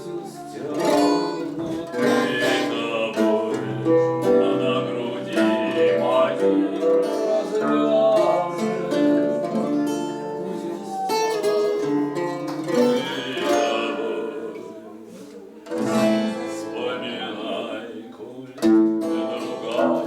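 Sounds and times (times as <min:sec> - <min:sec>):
guitar playing plucked notes: 0:00.7 - 0:14.8, 0:15.6 - 0:16.8.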